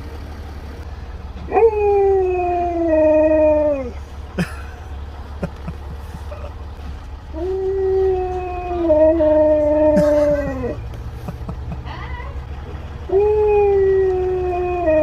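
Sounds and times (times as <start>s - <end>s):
steady low hum: 0.0s - 15.0s
husky howling: 1.4s - 4.0s, 7.3s - 10.8s, 13.1s - 15.0s.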